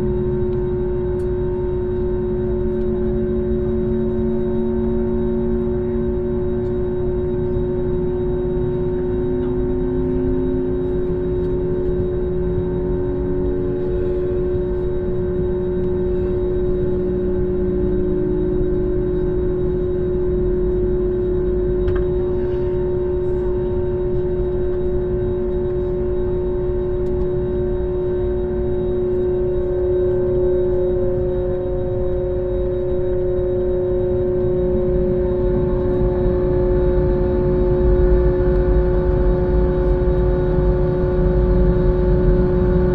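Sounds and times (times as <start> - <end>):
jet engine low hum: 0.0 - 42.9
mid-pitched engine whine: 0.0 - 42.9.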